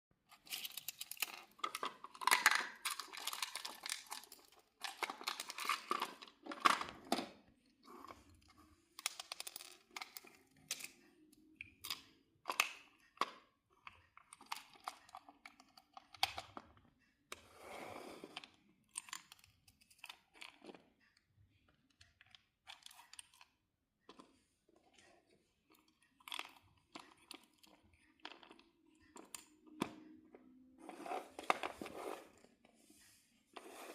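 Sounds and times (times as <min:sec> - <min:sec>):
toy truck clicking and knocking: 0:00.3 - 0:07.4, 0:08.9 - 0:11.2, 0:11.8 - 0:16.8.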